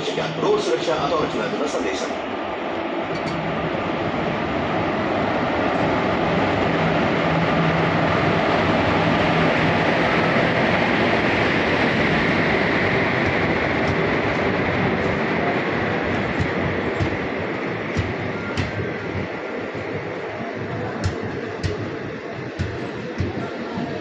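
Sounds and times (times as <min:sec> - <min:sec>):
locomotive humming: 0:00.0 - 0:24.0
train wheels rumbling on rails: 0:00.0 - 0:24.0.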